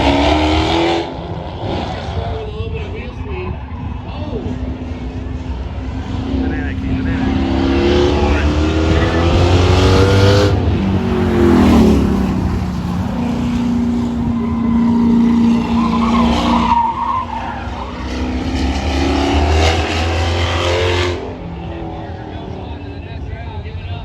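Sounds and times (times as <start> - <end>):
race car engines at high revs: 0.0 - 24.0
tyre squeal: 13.3 - 18.4.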